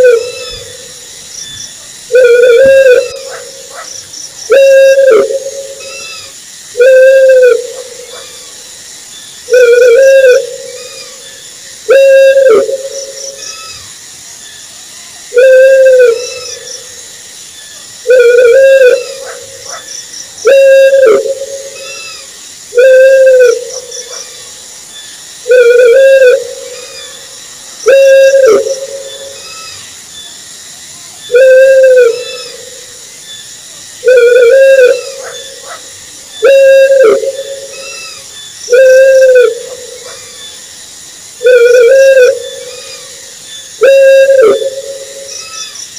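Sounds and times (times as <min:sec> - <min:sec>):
owl hooting: 0:00.0 - 0:01.0, 0:02.1 - 0:08.6, 0:09.5 - 0:13.9, 0:15.3 - 0:16.7, 0:18.0 - 0:24.3, 0:25.4 - 0:29.8, 0:31.3 - 0:32.8, 0:34.0 - 0:40.6, 0:41.4 - 0:43.2, 0:43.8 - 0:45.8
steady high hiss: 0:00.0 - 0:45.9
fainter higher calls: 0:31.3 - 0:32.8, 0:34.0 - 0:40.5, 0:41.4 - 0:45.8.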